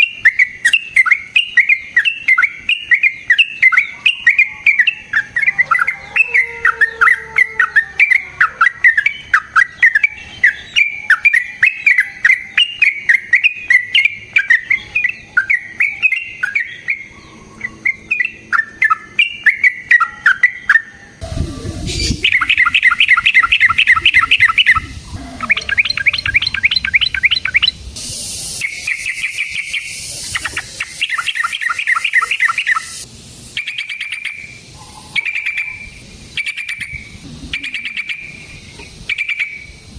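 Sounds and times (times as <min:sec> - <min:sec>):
bird chattering song: 0:00.0 - 0:39.9
bird rattling trills: 0:21.6 - 0:39.7.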